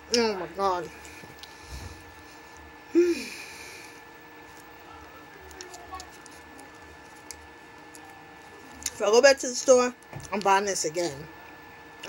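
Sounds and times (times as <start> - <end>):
person chewing: 0.8 - 2.8, 3.8 - 9.0
person humming: 2.9 - 3.6.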